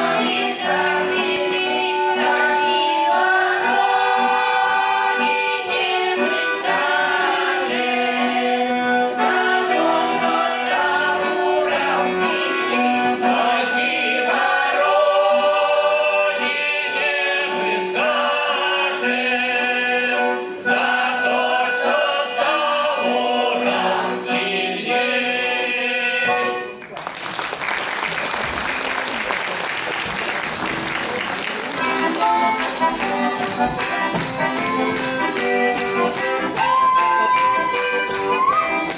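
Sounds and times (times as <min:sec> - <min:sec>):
folk choir singing: 0:00.0 - 0:26.8
accordion: 0:00.0 - 0:27.0, 0:28.3 - 0:38.9.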